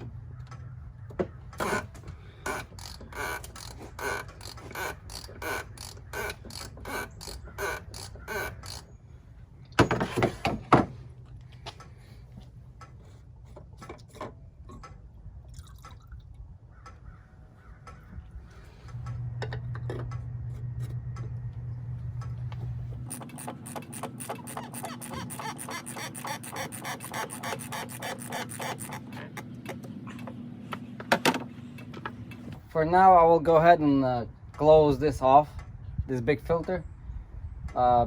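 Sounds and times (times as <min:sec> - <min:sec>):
steady low hum: 0:00.0 - 0:37.9
ratchet clicking: 0:01.6 - 0:08.9, 0:23.1 - 0:29.2
liquid dripping: 0:15.5 - 0:16.4.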